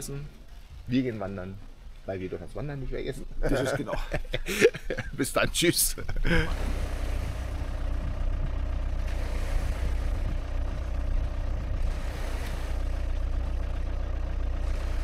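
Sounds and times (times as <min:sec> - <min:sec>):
car engine running at low revs: 0:03.2 - 0:15.0.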